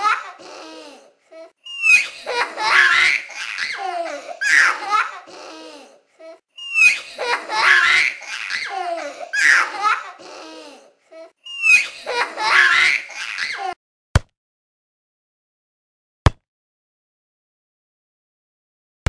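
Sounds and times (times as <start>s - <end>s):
children laughing: 0.0s - 13.8s
high falling squeal: 1.6s - 2.3s, 6.6s - 7.2s, 11.4s - 12.0s.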